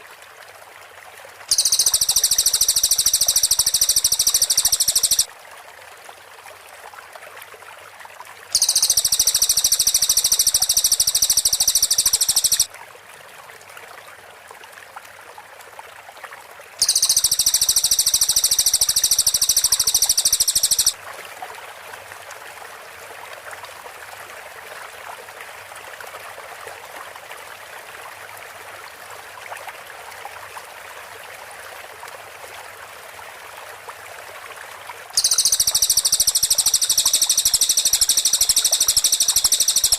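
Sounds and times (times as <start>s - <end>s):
background hiss: 1.5s - 5.3s, 8.6s - 12.7s, 16.8s - 21.0s, 35.2s - 39.9s
bird high trilled song: 1.5s - 5.3s, 8.6s - 12.7s, 16.8s - 21.0s, 35.2s - 39.9s.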